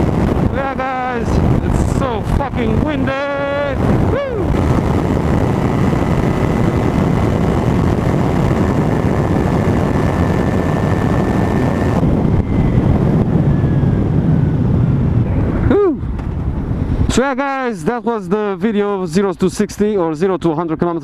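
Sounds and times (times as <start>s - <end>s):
motorcycle engine at speed: 0.0s - 0.8s, 1.4s - 17.1s
wind buffeting microphone: 0.0s - 20.2s.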